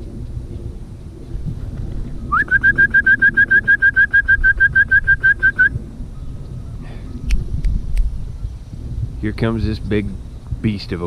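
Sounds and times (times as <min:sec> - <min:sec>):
bird whistling rapid notes: 0:02.2 - 0:07.4.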